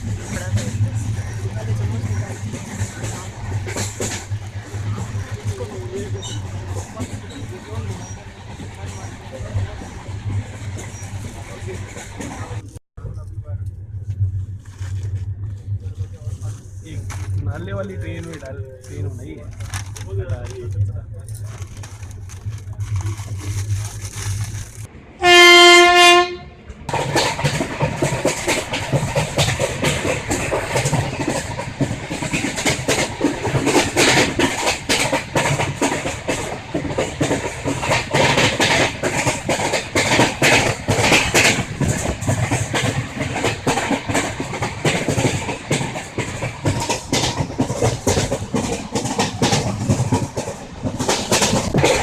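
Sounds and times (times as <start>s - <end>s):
train wheels clattering: 0.0s - 12.8s, 26.8s - 52.0s
train horn blast: 25.2s - 26.6s.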